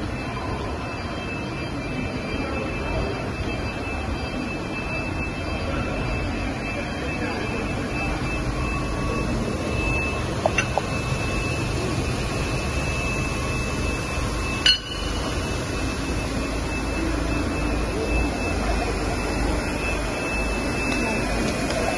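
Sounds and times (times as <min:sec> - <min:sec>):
faint high whine: 0:00.0 - 0:21.9
machinery noise: 0:00.0 - 0:21.9.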